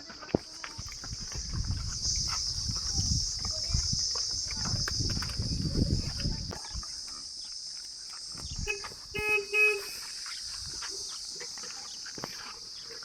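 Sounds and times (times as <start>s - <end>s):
high-pitched insect drone: 0.4s - 13.0s
vehicle horn beeps: 8.6s - 10.2s.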